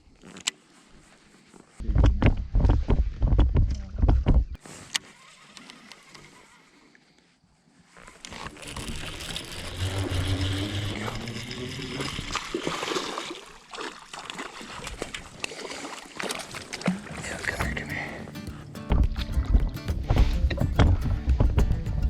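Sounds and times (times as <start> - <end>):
water splashing: 8.1 - 18.3.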